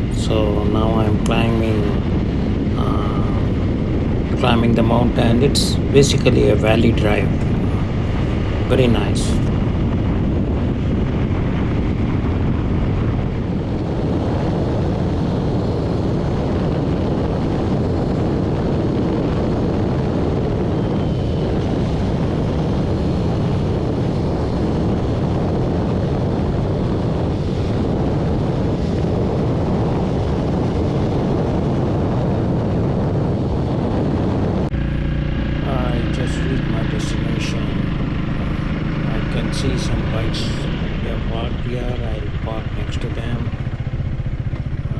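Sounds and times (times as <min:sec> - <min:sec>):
motorcycle engine running: 0:00.0 - 0:10.5, 0:34.7 - 0:44.9
wind rush over microphone: 0:00.0 - 0:44.9.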